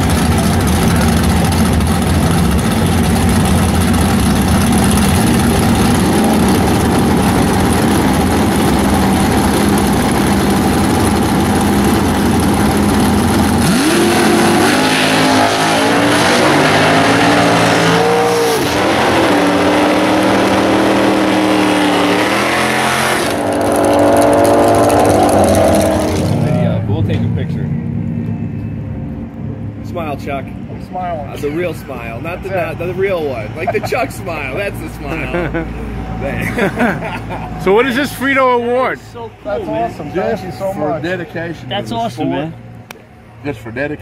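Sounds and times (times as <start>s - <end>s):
drag car engine revving: 0.0s - 27.5s.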